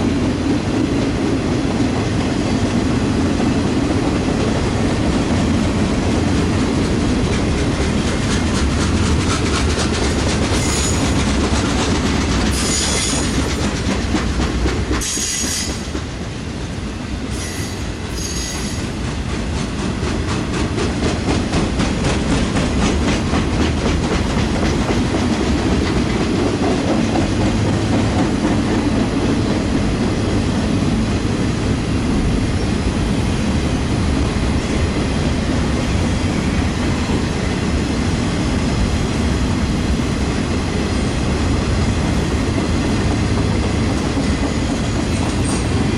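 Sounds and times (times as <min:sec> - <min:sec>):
freight train rumbling: 0:00.0 - 0:45.9
wheels clacking over rail joints: 0:06.0 - 0:16.2, 0:17.3 - 0:29.9, 0:41.8 - 0:45.9
wheel squeals: 0:10.6 - 0:11.1, 0:17.4 - 0:18.8.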